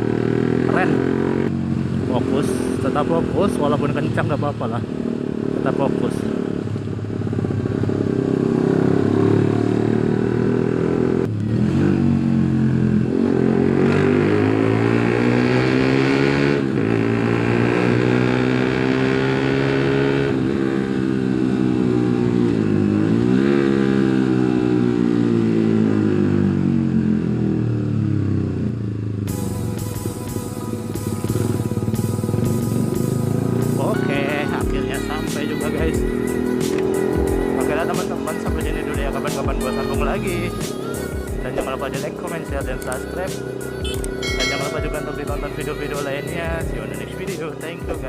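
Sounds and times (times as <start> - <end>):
motorcycle engine revving: 0.0 - 48.0
music: 29.2 - 48.0.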